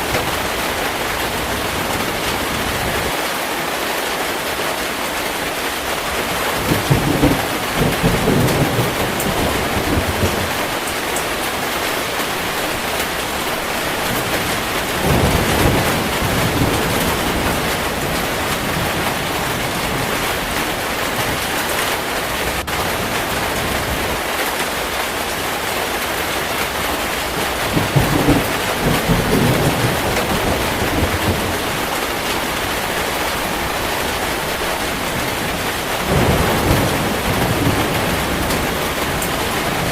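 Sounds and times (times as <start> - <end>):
heavy rain: 0.0 - 39.9
thunder rumbling: 6.1 - 24.3, 26.4 - 39.9.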